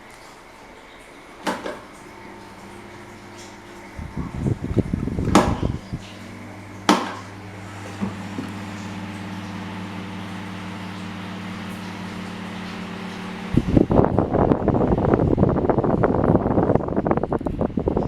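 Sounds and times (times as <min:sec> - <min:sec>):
fan motor humming: 0:00.0 - 0:18.0
fan switch clicks: 0:01.4 - 0:09.7.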